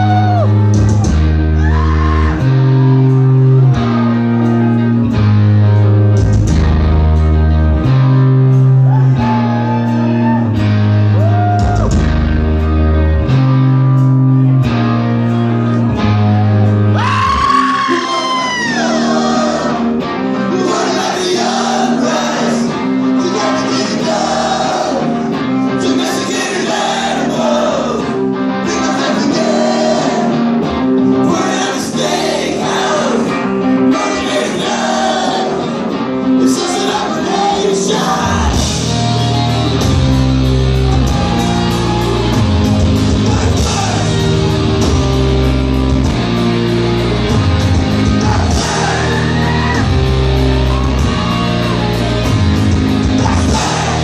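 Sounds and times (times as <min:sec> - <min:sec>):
heavy bass and drums: 0:00.0 - 0:17.6, 0:38.2 - 0:54.0
electric guitar: 0:00.0 - 0:54.0
live punk band playing: 0:00.0 - 0:54.0.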